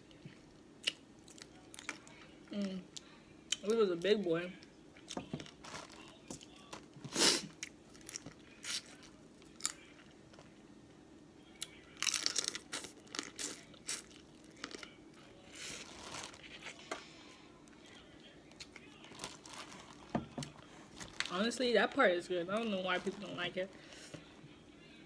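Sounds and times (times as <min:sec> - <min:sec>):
shells cracking and crunching: 0:12.0 - 0:14.9.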